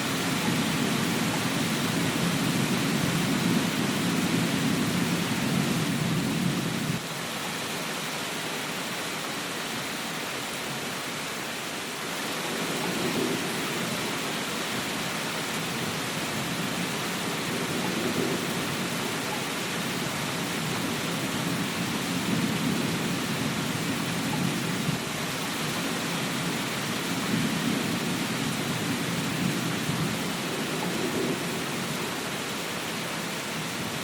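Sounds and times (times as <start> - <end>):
low rumble of thunder: 0.0 - 7.0, 12.5 - 14.9, 15.5 - 25.0, 25.6 - 32.4
steady rainfall: 0.0 - 34.0.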